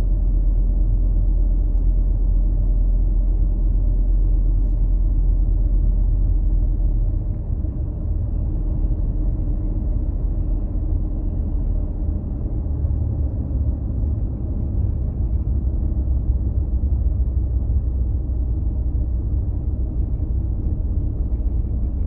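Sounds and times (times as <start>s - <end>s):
car driving on road rumble: 0.0s - 22.0s.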